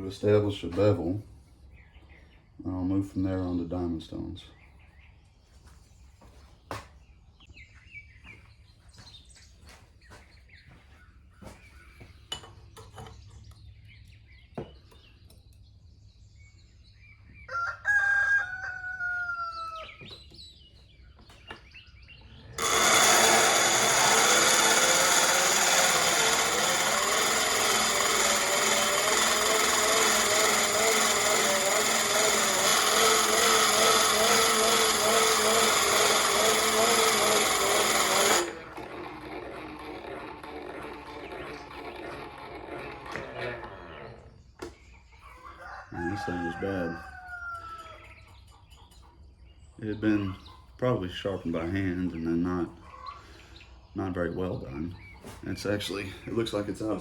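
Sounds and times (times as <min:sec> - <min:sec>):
rooster crowing: 0:17.5 - 0:20.0, 0:45.4 - 0:48.1
bench grinding wheel grinding metal: 0:22.3 - 0:44.7.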